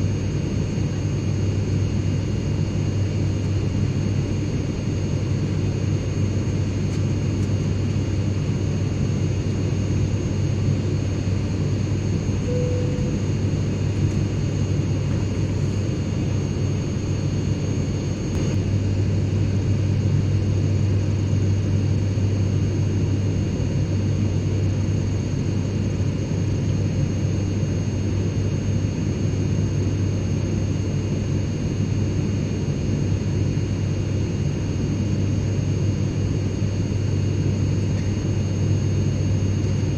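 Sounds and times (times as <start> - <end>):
airliner cabin rumble: 2.8 - 23.0
short faint low tone: 12.5 - 13.3
faint high-pitched whine: 12.5 - 13.5.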